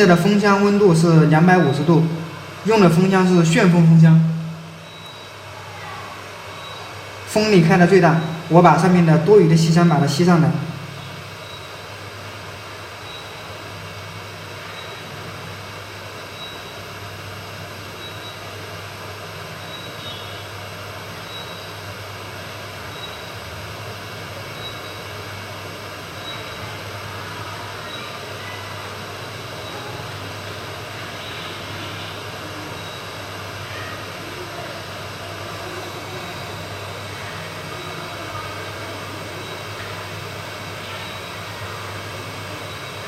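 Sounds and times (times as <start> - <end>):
hot air rework station blowing: 0.0 - 43.0.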